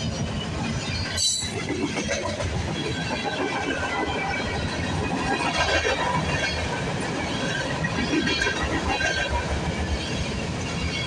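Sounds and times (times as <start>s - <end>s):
train wheels clattering on rails: 0.0s - 11.0s.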